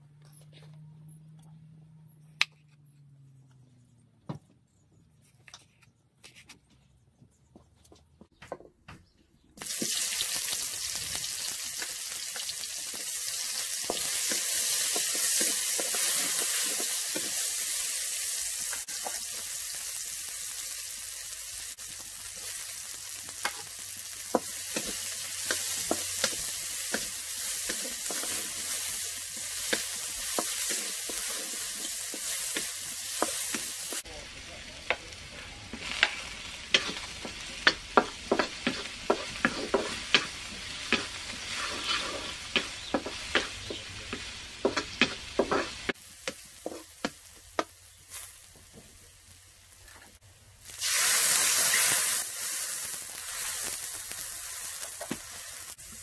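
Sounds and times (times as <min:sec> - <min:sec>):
onion sizzling in hot oil: 0:09.6 - 0:34.1, 0:35.2 - 0:56.0
wooden spatula scraping a wok: 0:13.6 - 0:17.8, 0:24.3 - 0:34.0, 0:35.7 - 0:47.0.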